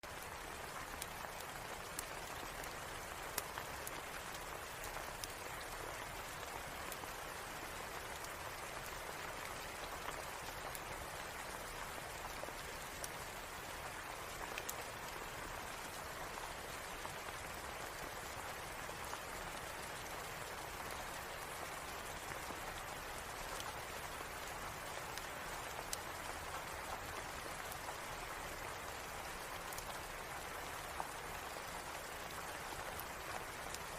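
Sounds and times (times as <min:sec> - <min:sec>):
steady rain: 0:00.0 - 0:33.9
log fire crackling and popping: 0:00.6 - 0:07.0, 0:14.0 - 0:16.0, 0:29.6 - 0:30.0.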